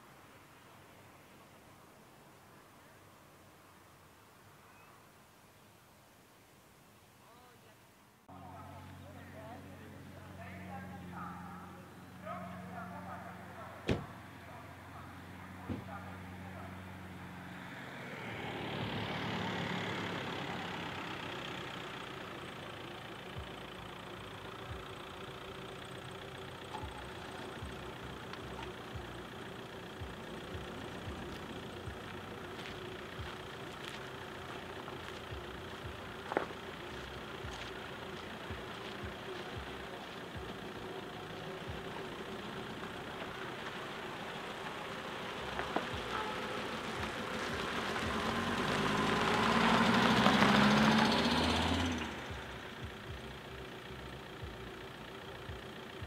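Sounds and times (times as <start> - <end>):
car engine idling: 8.2 - 56.0
vehicle passing: 8.3 - 55.8
car pulling up: 8.3 - 56.0
faint low engine knock: 26.5 - 44.8.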